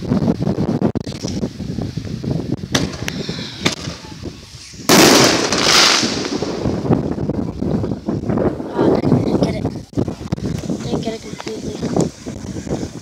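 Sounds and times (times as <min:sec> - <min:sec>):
wind rumble on microphone: 0:00.0 - 0:13.0
firework burst crackling: 0:02.7 - 0:07.3.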